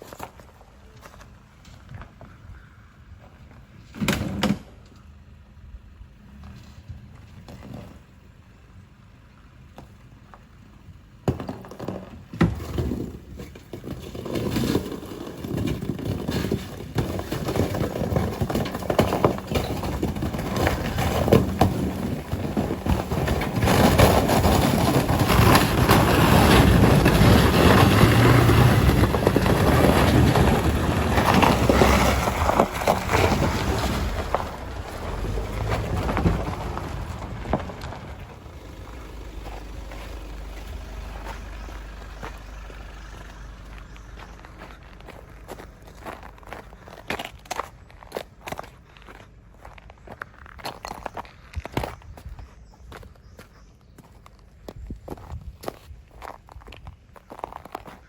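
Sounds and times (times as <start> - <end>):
truck engine: 0.0 - 51.9
tyres crunching ice: 11.3 - 52.3.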